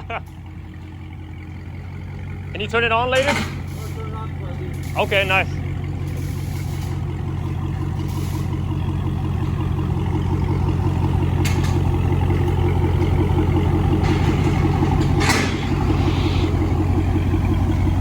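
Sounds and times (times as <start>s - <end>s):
car engine idling: 0.0s - 18.0s
short hiss: 15.5s - 17.0s.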